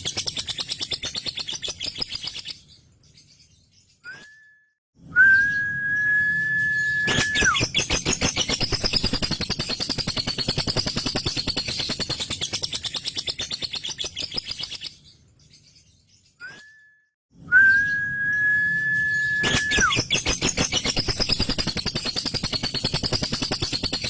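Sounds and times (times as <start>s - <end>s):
lovebird whistle sliding down: 5.2s - 7.6s, 17.5s - 20.1s
lovebird rattling chatter: 7.1s - 14.8s, 19.4s - 24.0s.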